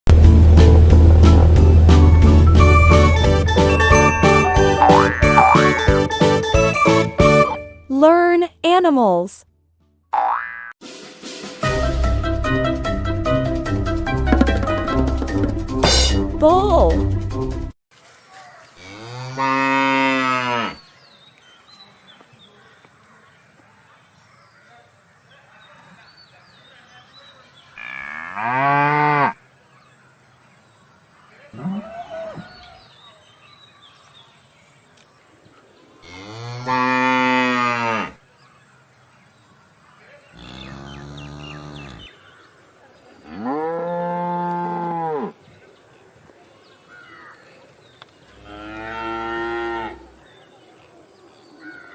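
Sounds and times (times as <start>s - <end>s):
bull mooing: 40.4s - 42.1s.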